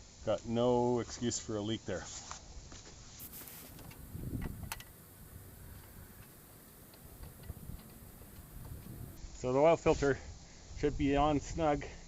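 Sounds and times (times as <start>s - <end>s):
oil filter ticking and clicks: 5.6s - 9.1s.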